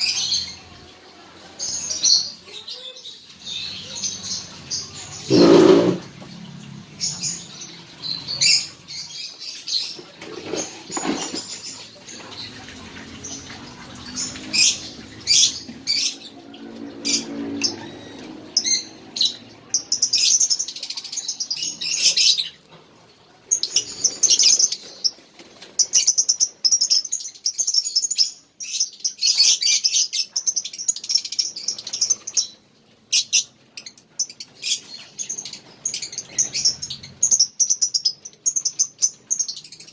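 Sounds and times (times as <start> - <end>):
bird chirping and chattering: 3.6 - 6.1.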